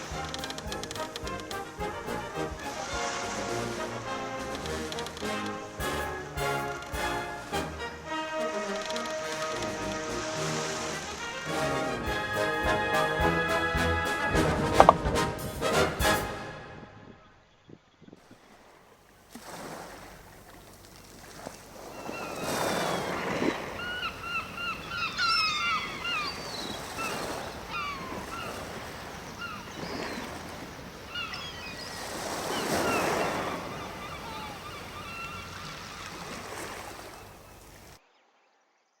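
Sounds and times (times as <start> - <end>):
waves washing onto shore: 0.0 - 16.5, 18.2 - 38.0
birds chirping: 20.1 - 38.2.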